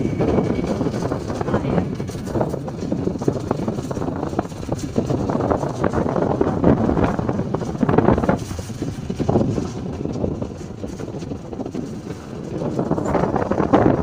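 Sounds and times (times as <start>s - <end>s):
motorcycle engine: 0.0s - 14.0s
road noise: 0.0s - 14.0s
wind buffeting microphone: 0.0s - 14.0s.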